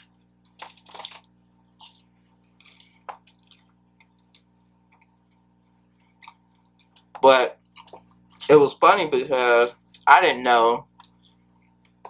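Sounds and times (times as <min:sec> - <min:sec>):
faint wet chewing: 0:00.0 - 0:08.5, 0:10.9 - 0:12.0.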